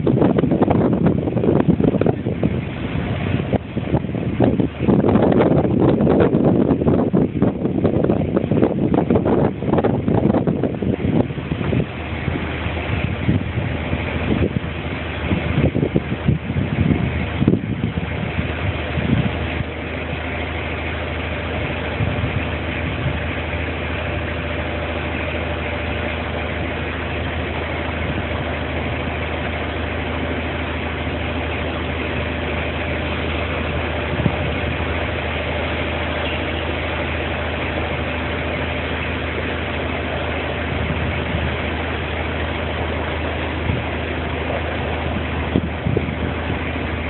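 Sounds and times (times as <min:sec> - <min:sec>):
boat engine idling: 0:00.0 - 0:47.0.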